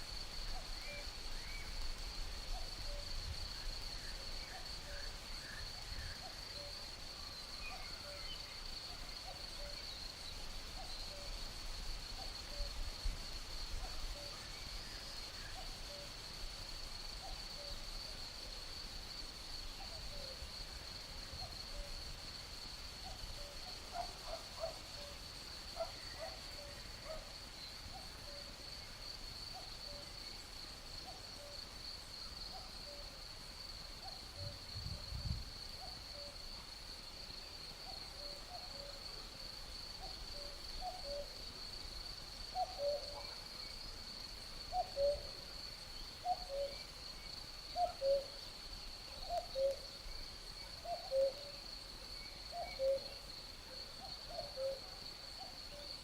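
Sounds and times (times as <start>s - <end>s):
high-pitched insect trill: 13.6s - 56.0s.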